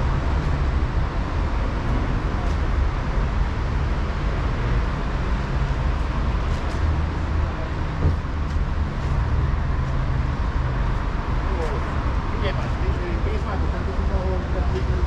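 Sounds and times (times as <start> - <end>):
city street traffic: 0.0 - 15.0
brief thump: 8.0 - 8.2.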